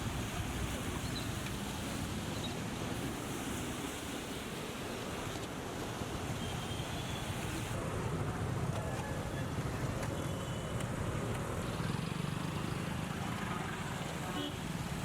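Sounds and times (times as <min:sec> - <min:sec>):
steady wash of noise: 0:07.3 - 0:10.1.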